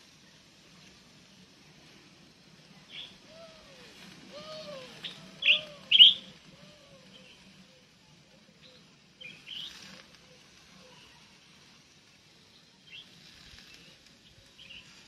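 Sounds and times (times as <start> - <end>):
birds chirping: 2.8 - 3.5, 4.3 - 7.7, 8.6 - 10.1
low rising and falling call: 2.8 - 7.8.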